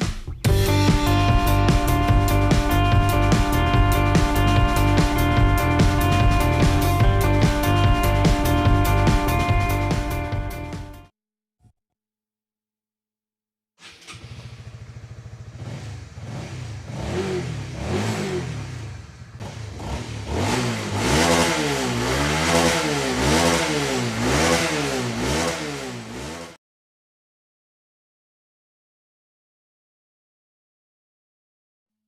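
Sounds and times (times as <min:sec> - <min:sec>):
motorcycle engine revving: 0:00.4 - 0:11.0, 0:13.8 - 0:26.6.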